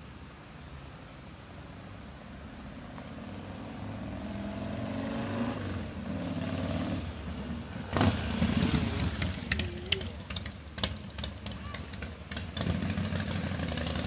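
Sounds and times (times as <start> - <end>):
motorcycle engine running: 5.8 - 14.0.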